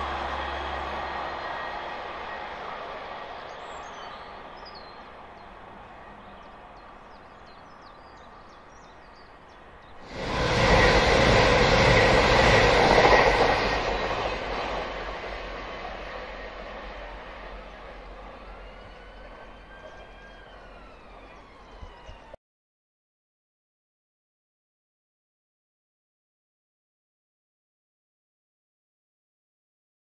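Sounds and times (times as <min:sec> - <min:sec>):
diesel train passing: 0:00.0 - 0:22.4
birds chirping: 0:00.5 - 0:22.3.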